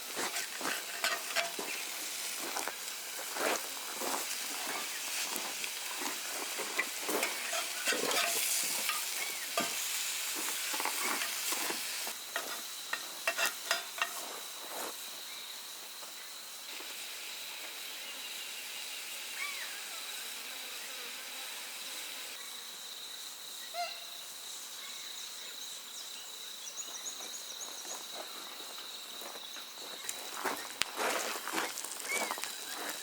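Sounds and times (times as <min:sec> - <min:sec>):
high-pitched insect drone: 0:00.0 - 0:33.0.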